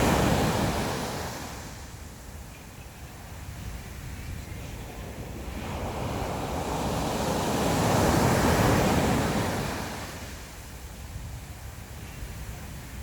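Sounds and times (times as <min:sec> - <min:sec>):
sea wave breaking: 0:00.0 - 0:01.8
wind buffeting microphone: 0:00.0 - 0:13.0.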